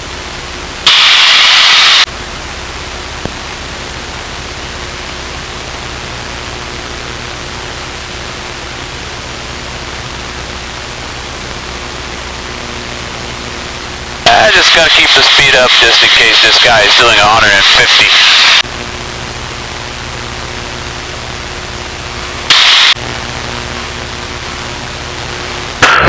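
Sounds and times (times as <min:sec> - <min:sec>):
airplane cockpit drone: 0:00.0 - 0:26.0
radio static burst: 0:00.8 - 0:02.1, 0:12.3 - 0:19.1, 0:22.0 - 0:26.0.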